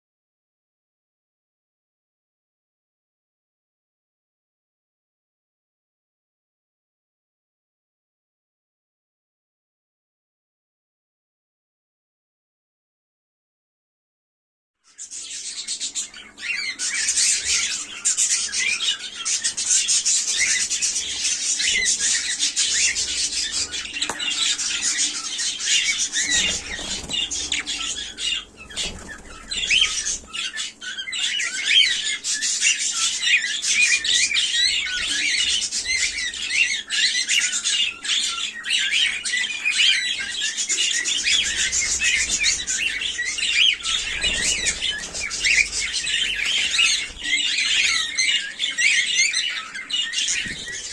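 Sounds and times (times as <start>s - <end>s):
cockatiels chirping and squawking: 14.9s - 50.9s.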